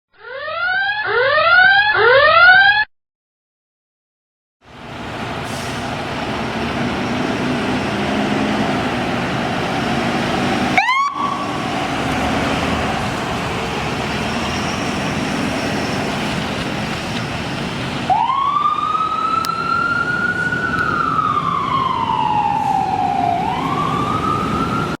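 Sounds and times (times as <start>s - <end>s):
siren wailing: 0.1s - 2.9s, 9.8s - 16.4s, 18.1s - 25.0s
siren whoop: 0.2s - 2.9s, 10.8s - 11.8s, 18.1s - 25.0s
truck and road noise: 4.6s - 25.0s.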